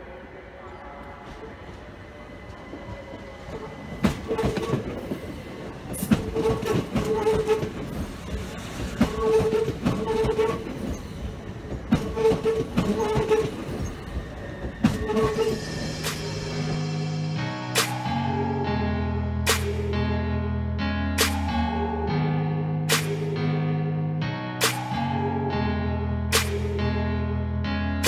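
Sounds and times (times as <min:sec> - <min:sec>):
train wheels clicking over rail joints: 0:02.5 - 0:16.5.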